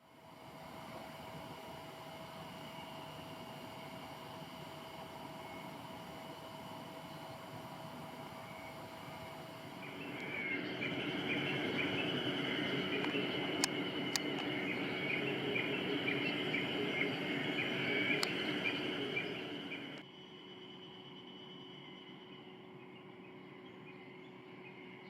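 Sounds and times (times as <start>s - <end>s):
sharp clicks: 9.9s - 20.0s.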